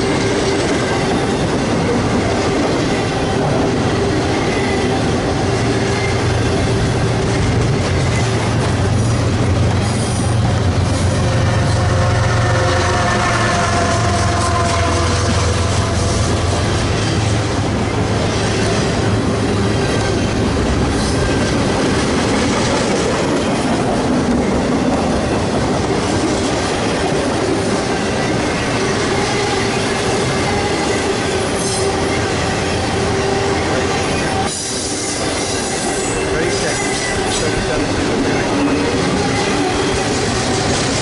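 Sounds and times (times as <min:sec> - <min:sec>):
low locomotive rumble: 0:00.0 - 0:41.0
train cars rolling past: 0:00.0 - 0:41.0.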